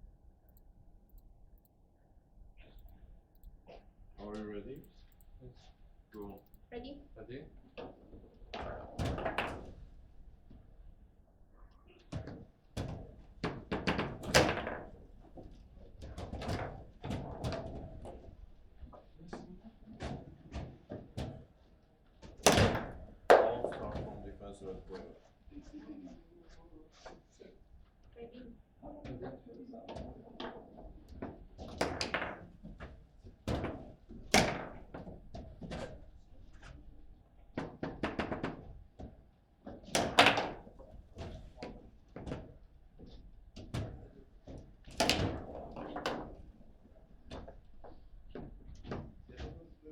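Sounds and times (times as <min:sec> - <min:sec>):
foosball ball knocks and thunks: 0:08.6 - 0:09.8, 0:12.2 - 0:18.3, 0:22.3 - 0:24.0, 0:31.2 - 0:36.0, 0:37.6 - 0:42.6, 0:43.6 - 0:46.5.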